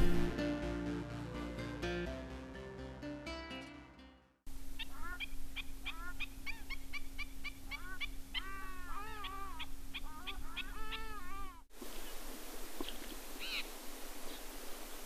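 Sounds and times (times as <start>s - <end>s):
birds short pitched calls: 4.8s - 11.6s, 12.8s - 13.7s
longer arched bird calls: 4.8s - 11.6s.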